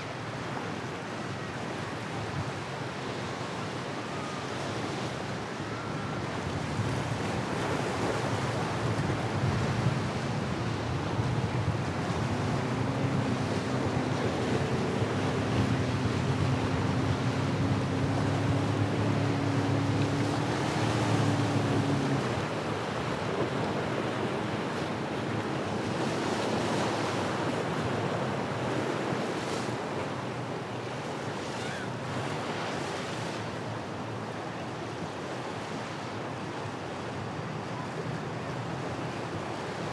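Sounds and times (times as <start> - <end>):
boat engine droning: 0.0 - 39.9
wind buffeting microphone: 6.3 - 25.7.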